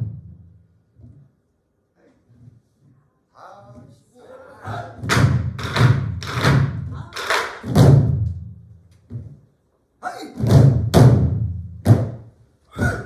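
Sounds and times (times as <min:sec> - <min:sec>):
barrel drums struck in unison: 0:07.6 - 0:08.5.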